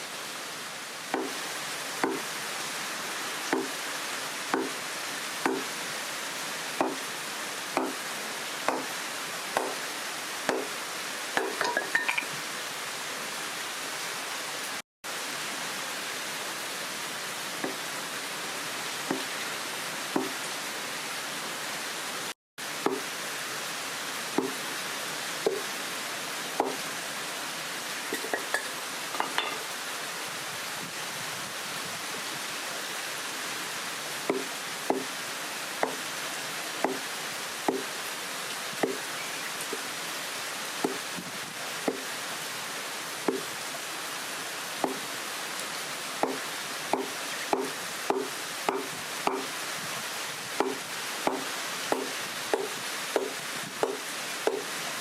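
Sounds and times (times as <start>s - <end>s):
heavy rain pouring: 0.0s - 55.0s
water dripping plinks: 11.4s - 12.4s.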